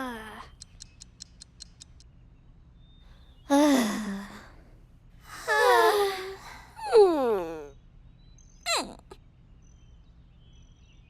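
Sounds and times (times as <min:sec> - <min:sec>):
faint high ticks: 0:00.5 - 0:02.1
cartoon voice sighing: 0:08.7 - 0:09.2.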